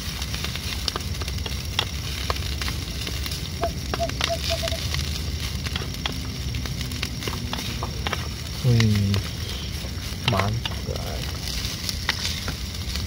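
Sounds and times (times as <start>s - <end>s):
crackles and clicks: 0.0s - 13.0s
low rumble: 0.0s - 13.0s
rice cooking in a pan: 0.0s - 13.0s
faint high chirps: 3.6s - 4.8s.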